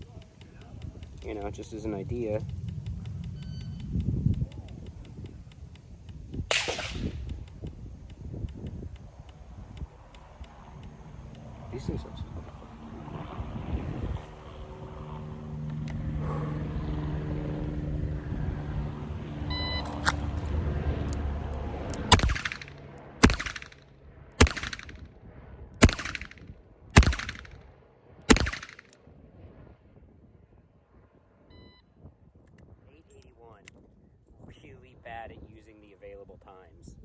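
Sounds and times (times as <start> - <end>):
revolver shots: 6.5 - 7.4, 22.0 - 23.8, 24.4 - 25.0, 28.3 - 28.9.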